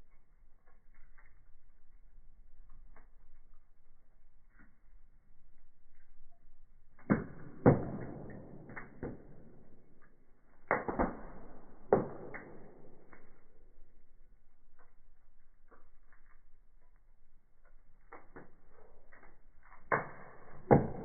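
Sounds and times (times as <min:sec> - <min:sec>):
wood fire crackling: 0:00.0 - 0:21.0
sharp pops of fire: 0:06.9 - 0:17.0, 0:17.6 - 0:21.0.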